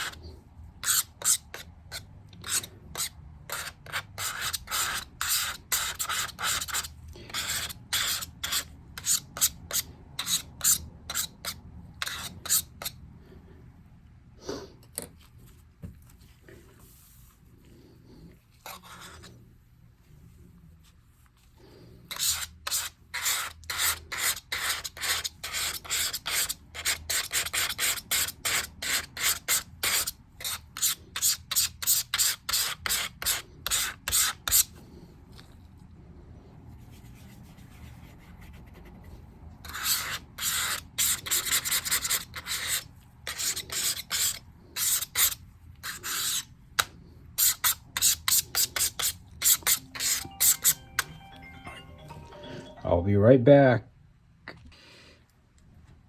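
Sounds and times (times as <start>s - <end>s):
hand rubbing a surface: 36.7s - 39.2s.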